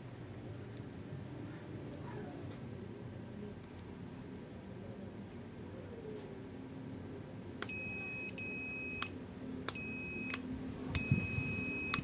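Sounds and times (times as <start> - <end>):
continuity tester beeping: 7.6 - 12.0
power switch clicking: 9.7 - 12.0.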